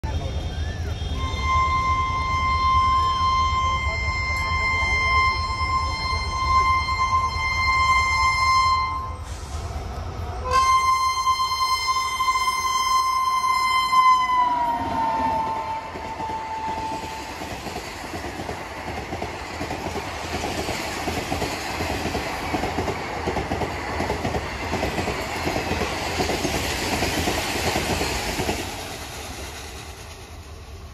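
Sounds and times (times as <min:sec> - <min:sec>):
train horn: 0:00.2 - 0:09.3, 0:10.4 - 0:17.4
train wheels rattling on rails: 0:00.5 - 0:30.9.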